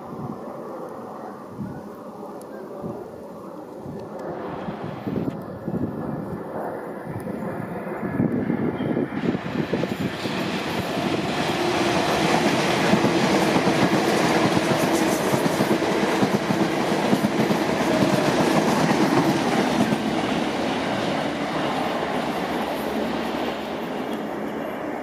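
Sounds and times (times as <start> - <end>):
train wheels on rails: 8.2 - 25.0.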